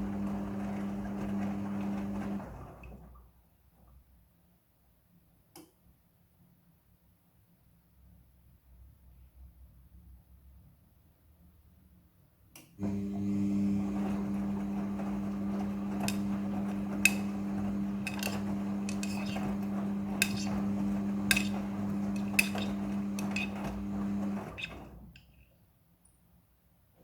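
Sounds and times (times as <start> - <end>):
washing machine motor hum: 0.0 - 3.2, 12.8 - 25.2.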